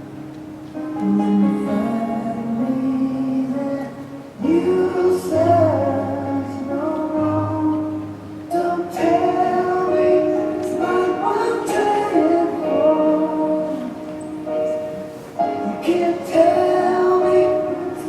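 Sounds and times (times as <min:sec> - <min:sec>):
choir singing: 0:03.0 - 0:07.8, 0:08.5 - 0:14.2, 0:15.6 - 0:18.0.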